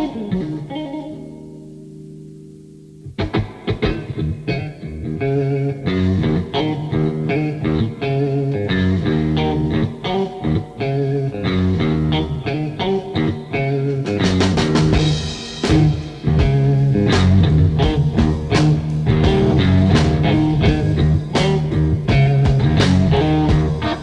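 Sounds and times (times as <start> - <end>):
bass: 0.0 - 24.0
electric guitar playing: 0.0 - 24.0
drum kit beat: 14.0 - 24.0.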